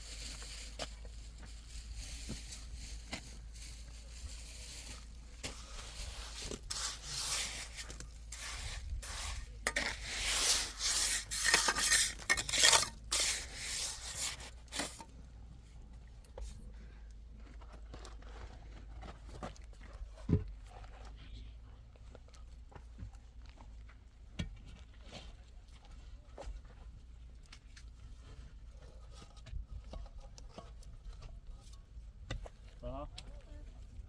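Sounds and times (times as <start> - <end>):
objects scraping and clattering: 1.4 - 15.2.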